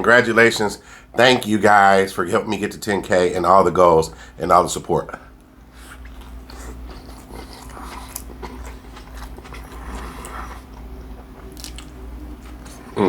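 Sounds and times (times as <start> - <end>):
person chewing crunchy food: 5.7 - 13.0.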